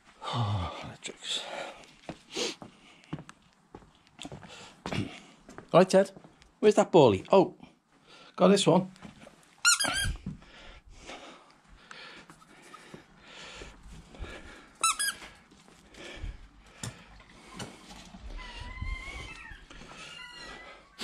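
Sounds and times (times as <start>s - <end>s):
squeaky rubber toy squeaking: 9.6s - 10.2s, 14.8s - 15.2s.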